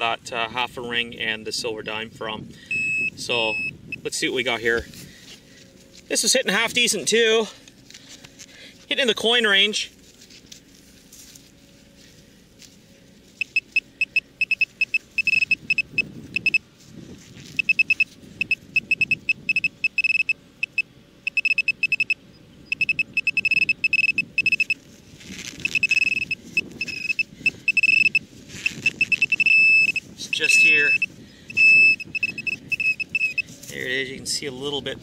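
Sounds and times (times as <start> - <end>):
metal detector beeping: 2.7 - 4.2, 13.4 - 16.7, 17.4 - 24.8, 25.4 - 33.8
faint rustling from digging: 9.8 - 14.0.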